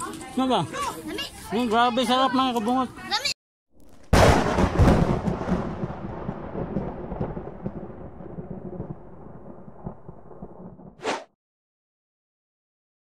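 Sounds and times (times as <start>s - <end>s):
loud rumbling boom: 3.8s - 11.0s.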